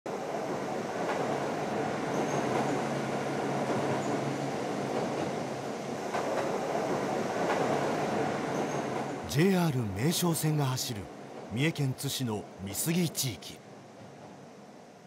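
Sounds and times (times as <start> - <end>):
rail joint clicks: 6.0 - 9.2.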